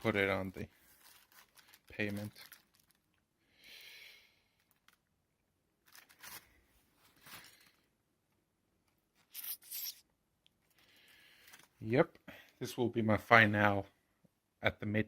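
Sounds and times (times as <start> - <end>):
plastic packaging crinkling: 0.0 - 3.2, 4.6 - 5.1, 5.8 - 7.9.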